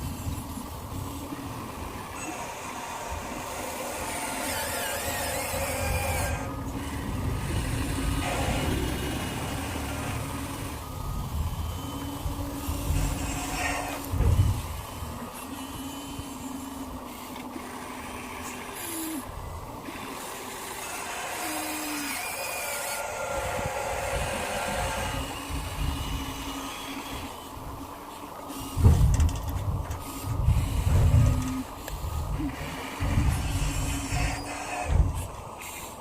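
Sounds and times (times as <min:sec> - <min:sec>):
small electric motors whining: 0:00.0 - 0:36.0
heavy low rumbles and knocks: 0:28.8 - 0:31.6.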